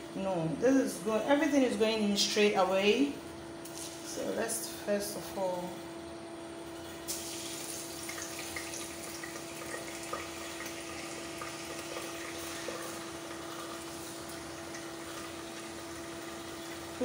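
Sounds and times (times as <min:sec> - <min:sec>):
rice sizzling in oil: 0:07.1 - 0:17.0.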